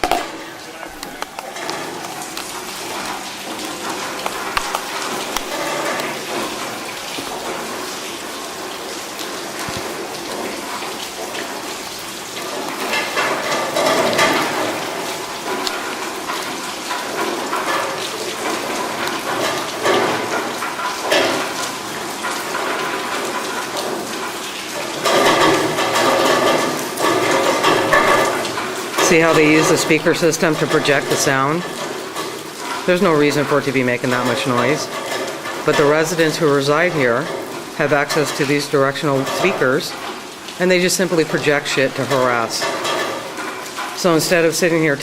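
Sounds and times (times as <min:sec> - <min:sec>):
rain splashing on hard surfaces: 0:00.0 - 0:45.0.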